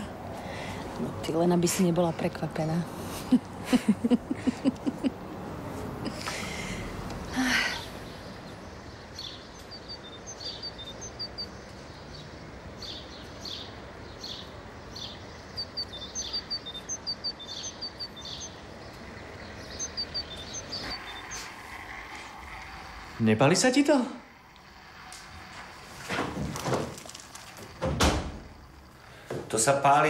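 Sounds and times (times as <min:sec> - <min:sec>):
outdoor background hiss: 0:00.0 - 0:30.0
small birds chirping: 0:00.4 - 0:23.8.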